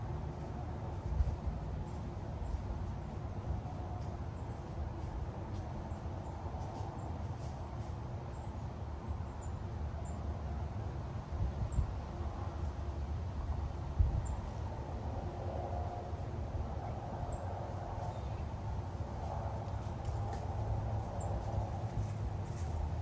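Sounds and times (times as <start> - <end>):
wind buffeting microphone: 13.5 - 23.0.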